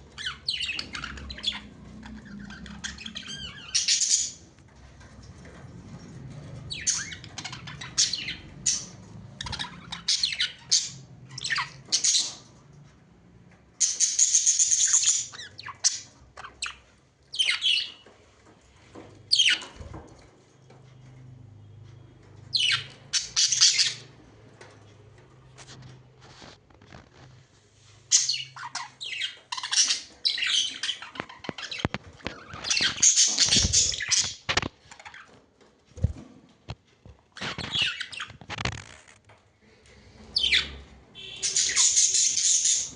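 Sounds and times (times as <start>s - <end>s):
budgerigars chirping and squawking: 0.1s - 4.5s, 6.6s - 12.6s, 13.8s - 18.1s, 19.3s - 20.0s, 22.5s - 24.1s, 28.1s - 35.4s, 37.4s - 39.0s, 40.1s - 42.9s.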